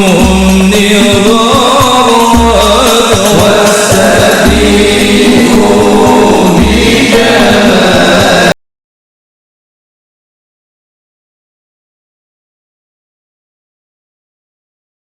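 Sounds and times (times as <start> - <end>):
deep low drum note: 0.0 - 8.3
drum strikes: 0.0 - 8.6.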